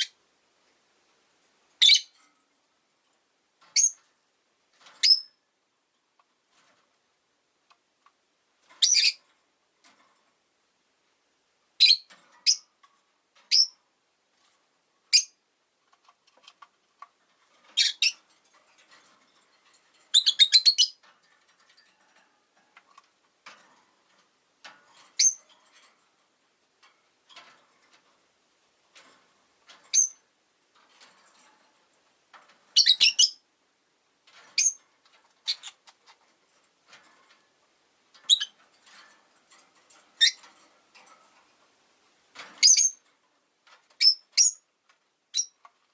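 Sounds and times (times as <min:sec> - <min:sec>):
lovebirds calling: 0:01.8 - 0:02.1, 0:08.8 - 0:09.2, 0:32.8 - 0:33.4, 0:42.6 - 0:43.0
soft bird chirps: 0:01.8 - 0:02.2, 0:08.8 - 0:09.2, 0:11.8 - 0:12.7, 0:17.8 - 0:18.2, 0:20.1 - 0:21.0, 0:32.8 - 0:33.4.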